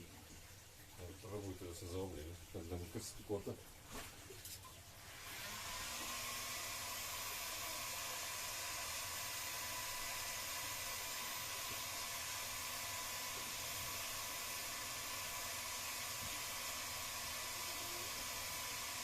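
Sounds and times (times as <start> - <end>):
hot air gun blowing: 5.2 - 19.0.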